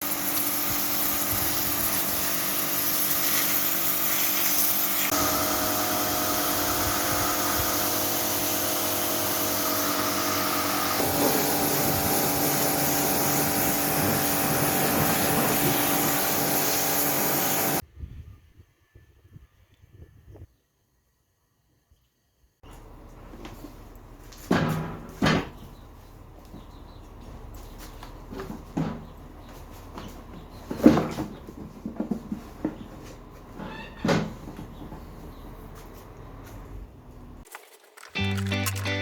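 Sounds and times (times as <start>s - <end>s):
machine humming over hiss: 0.0s - 17.8s.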